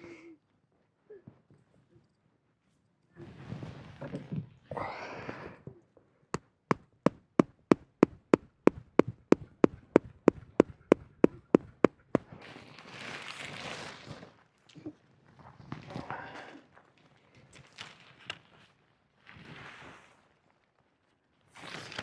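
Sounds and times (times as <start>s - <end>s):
hammer striking tent stake: 6.7s - 11.9s.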